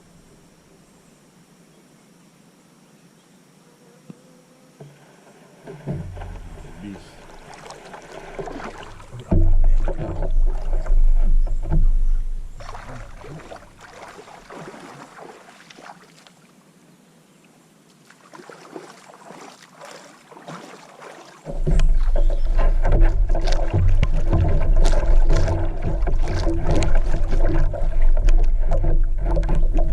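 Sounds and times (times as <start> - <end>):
water splashing around a kayak: 4.8 - 16.8, 17.4 - 29.9
low rumble on microphone: 5.8 - 7.6, 8.2 - 13.9, 21.5 - 29.9.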